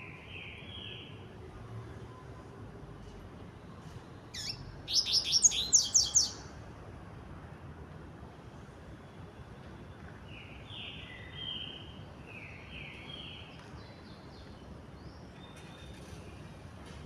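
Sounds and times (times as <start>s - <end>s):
bird singing short bright notes: 4.4s - 6.5s.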